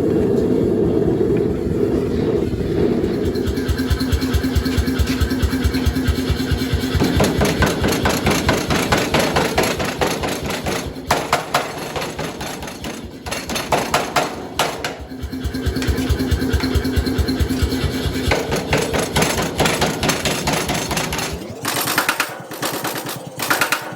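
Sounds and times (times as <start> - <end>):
steady mechanical hum: 0.0 - 23.9
hammer blows on hot steel: 3.2 - 21.4.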